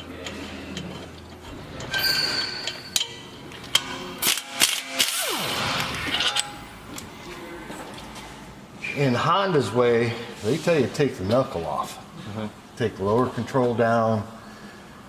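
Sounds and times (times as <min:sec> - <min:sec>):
metal tools clanking: 0:00.0 - 0:04.1.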